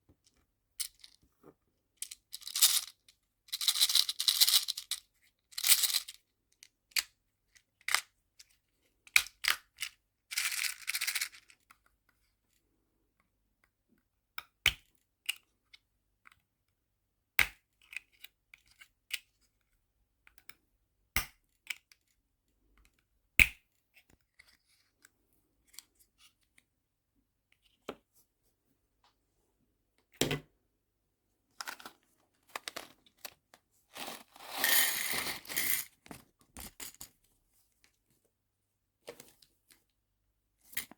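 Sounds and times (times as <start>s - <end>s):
crinkly plastic rustling: 31.6s - 36.0s.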